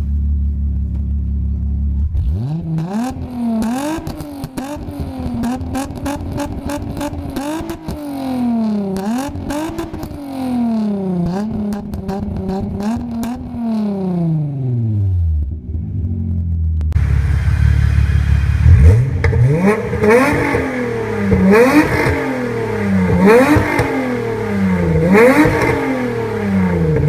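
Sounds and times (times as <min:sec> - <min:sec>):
exhaust cracks: 0:00.0 - 0:27.0
engine revving hard: 0:02.2 - 0:07.8, 0:17.0 - 0:27.0.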